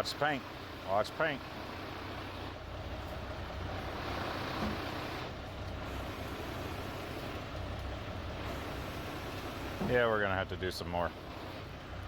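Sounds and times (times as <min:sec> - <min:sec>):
diesel engine running under load: 0:00.0 - 0:12.0.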